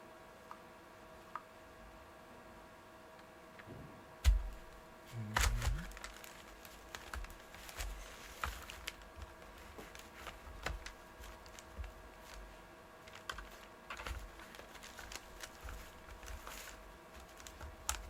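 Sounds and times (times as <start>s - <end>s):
thuds: 3.6s - 4.7s
plastic parts clicking and knocking: 5.4s - 12.4s, 13.0s - 18.0s.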